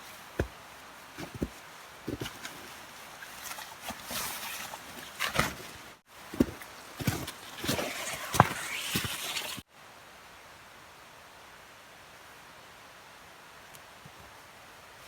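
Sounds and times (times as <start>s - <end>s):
rustling: 0.0s - 9.6s.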